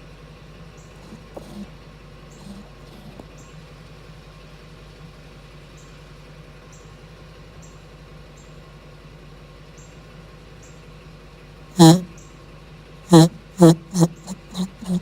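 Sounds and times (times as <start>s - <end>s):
van engine idling: 3.2s - 13.5s
faint high squeaks: 13.1s - 15.0s.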